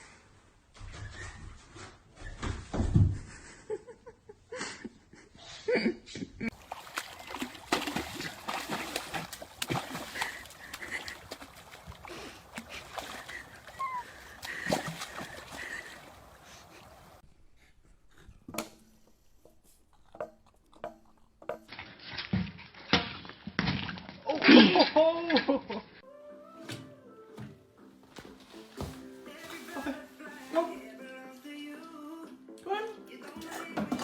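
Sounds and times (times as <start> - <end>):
water splashing and sloshing: 6.5 - 17.2, 33.2 - 34.0.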